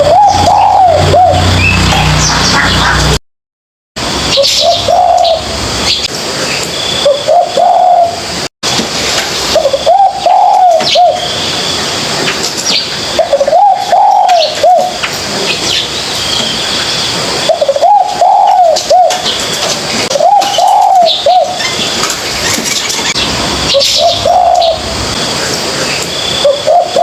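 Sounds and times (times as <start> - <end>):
dove cooing: 0.0 - 3.2, 4.4 - 5.5, 7.0 - 8.2, 9.5 - 11.3, 13.1 - 15.0, 17.4 - 19.4, 20.1 - 21.8, 22.4 - 25.0, 25.8 - 27.0.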